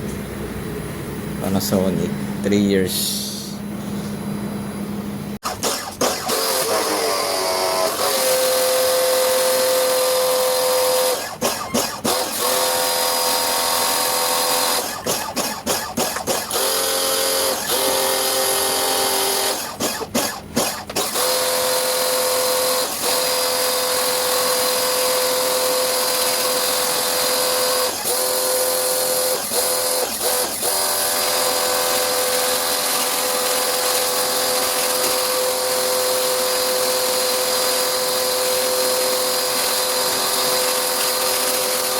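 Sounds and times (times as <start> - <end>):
power tool motor whining: 5.4 - 41.9.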